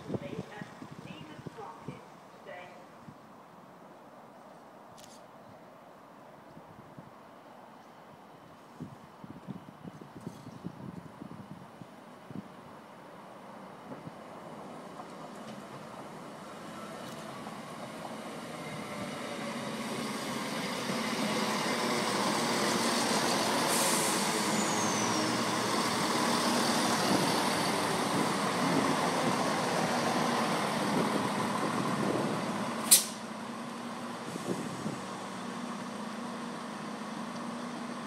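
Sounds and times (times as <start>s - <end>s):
diesel train braking to a stop: 16.2s - 38.0s.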